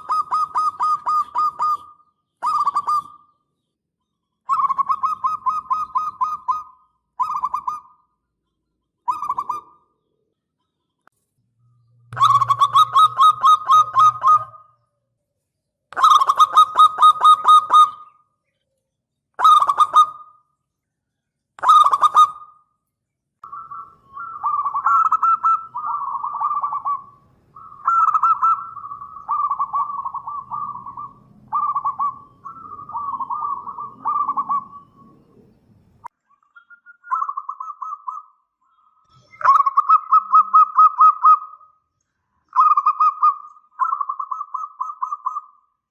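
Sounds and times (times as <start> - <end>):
dove cooing: 0.0 - 3.3, 4.5 - 8.0, 9.1 - 9.9, 12.2 - 14.8, 15.9 - 18.2, 19.4 - 20.3, 21.6 - 22.6, 23.4 - 35.6, 37.1 - 38.4, 42.6 - 45.6.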